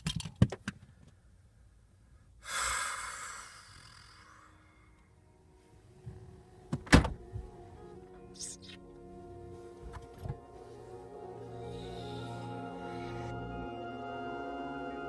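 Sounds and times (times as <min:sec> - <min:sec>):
person exhaling noisily: 0:02.4 - 0:05.0.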